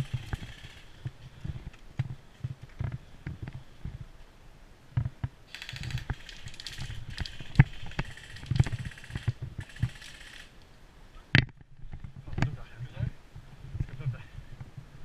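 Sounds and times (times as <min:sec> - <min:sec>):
airsoft gun firing full auto: 0:05.5 - 0:10.5.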